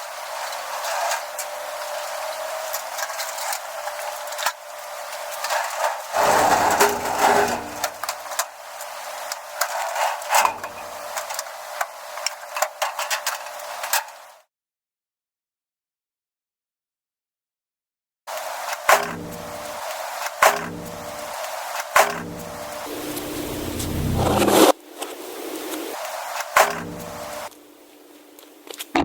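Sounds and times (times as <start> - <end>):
items knocking and clattering: 6.2 - 8.1.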